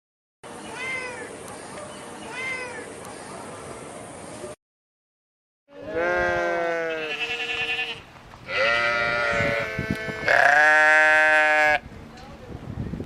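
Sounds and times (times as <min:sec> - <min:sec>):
goat bleating: 0:05.7 - 0:11.8.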